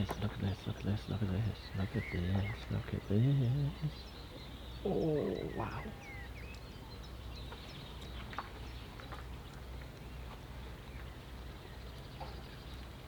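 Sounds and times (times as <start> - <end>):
high bird chirps and clicks: 6.4 - 6.7.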